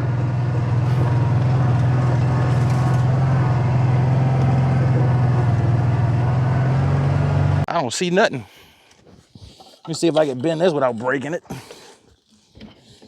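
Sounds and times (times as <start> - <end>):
utv engine humming: 0.0 - 7.7.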